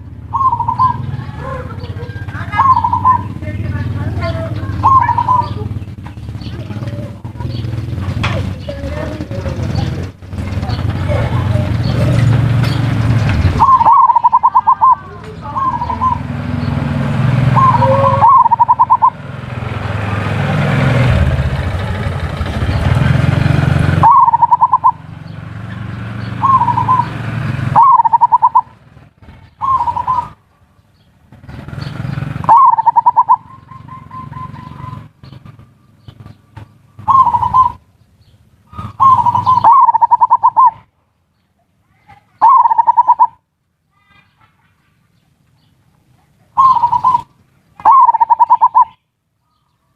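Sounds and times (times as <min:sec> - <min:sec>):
dove cooing: 0:00.0 - 0:16.5, 0:17.5 - 0:19.6, 0:22.4 - 0:25.4, 0:26.2 - 0:30.6, 0:32.4 - 0:37.9, 0:38.6 - 0:40.9, 0:42.4 - 0:43.4, 0:46.4 - 0:49.0.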